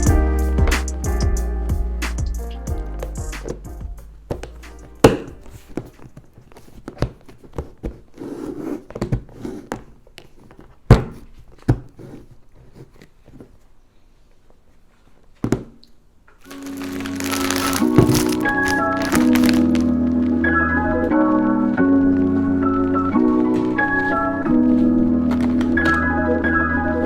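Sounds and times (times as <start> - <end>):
rustling: 16.4 - 26.4.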